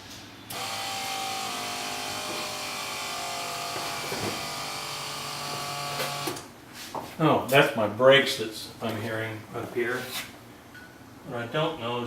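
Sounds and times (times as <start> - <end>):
electric brake pump whirring: 0.5 - 6.5.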